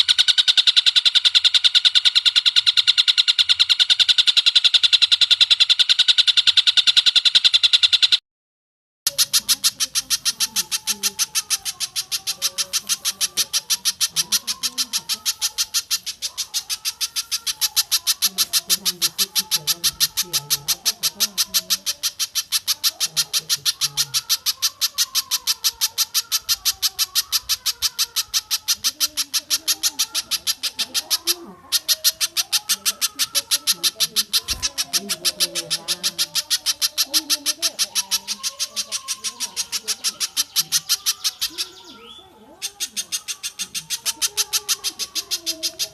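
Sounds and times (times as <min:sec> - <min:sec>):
faint low bird calls: 0:00.0 - 0:08.2, 0:09.1 - 0:45.9.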